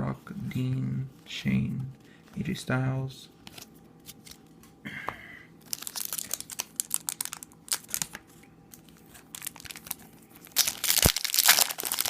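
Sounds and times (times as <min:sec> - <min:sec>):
foil wrapper crinkling and tearing: 0:05.6 - 0:08.2, 0:08.8 - 0:12.0.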